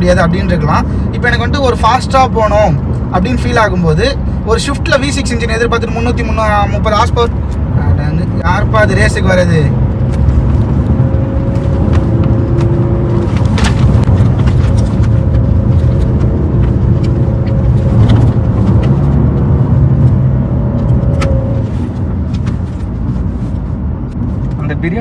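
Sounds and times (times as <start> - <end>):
road noise: 0.0 - 25.0
car engine accelerating: 6.1 - 25.0.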